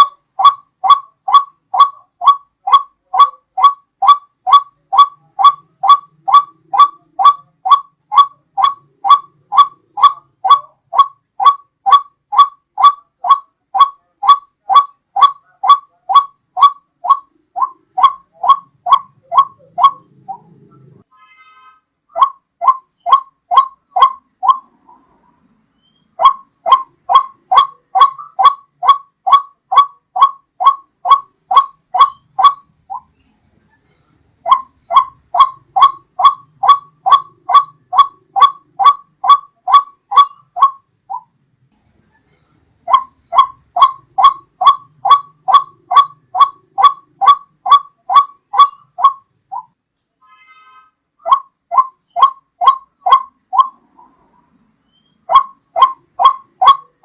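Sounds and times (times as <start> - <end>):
waterhen calling: 0.0 - 21.0, 22.1 - 25.2, 25.8 - 33.2, 34.4 - 41.3, 42.9 - 49.7, 51.2 - 54.3, 54.9 - 57.0.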